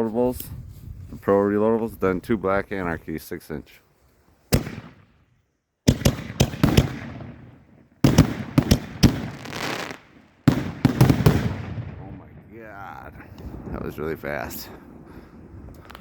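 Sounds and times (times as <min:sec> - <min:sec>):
firework launches and bursts: 0:05.9 - 0:12.0
firework hiss: 0:08.7 - 0:11.5.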